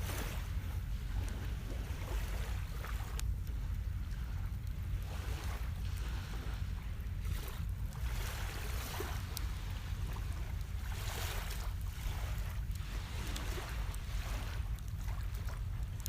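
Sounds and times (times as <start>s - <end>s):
low rumble: 0.0s - 16.0s
wind on microphone: 0.0s - 16.0s.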